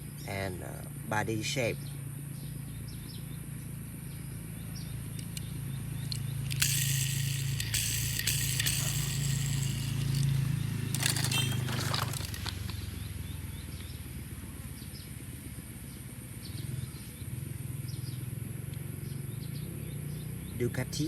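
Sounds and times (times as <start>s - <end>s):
steady low hum: 3.5s - 12.7s
plastic packaging crinkling: 11.0s - 12.7s.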